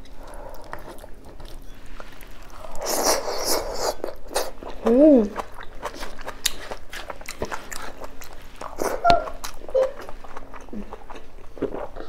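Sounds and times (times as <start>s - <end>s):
chewing and lip-smacking: 0.0s - 12.0s.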